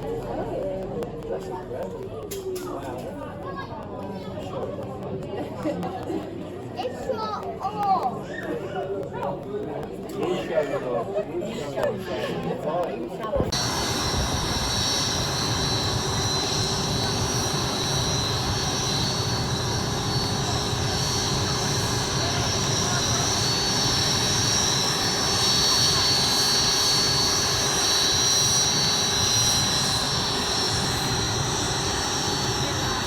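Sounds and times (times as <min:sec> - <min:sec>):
aircraft engines running: 0:13.4 - 0:33.0.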